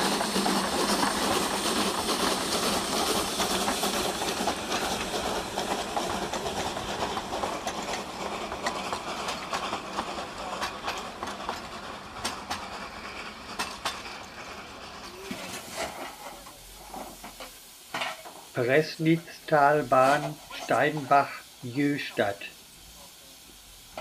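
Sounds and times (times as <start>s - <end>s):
wheels clicking over rail joints: 0.0s - 18.6s
train coaches rolling past: 0.0s - 24.0s.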